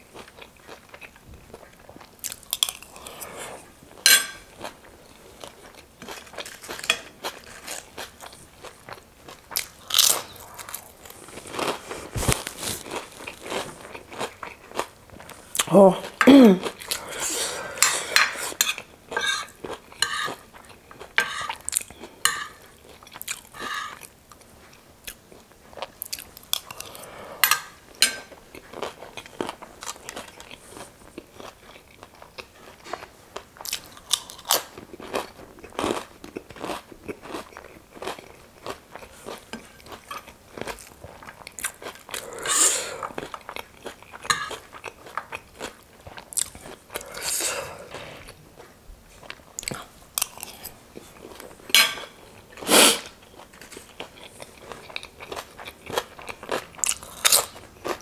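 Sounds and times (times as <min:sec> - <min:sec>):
person crunching and chewing snacks: 0:00.1 - 0:03.7, 0:04.5 - 0:18.9, 0:25.1 - 0:27.2, 0:28.5 - 0:48.4, 0:49.2 - 0:58.0.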